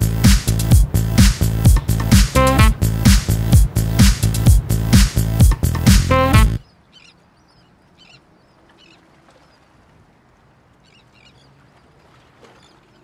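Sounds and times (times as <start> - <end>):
electronic dance music: 0.0 - 6.6
bird calling: 6.1 - 9.7, 10.8 - 13.0.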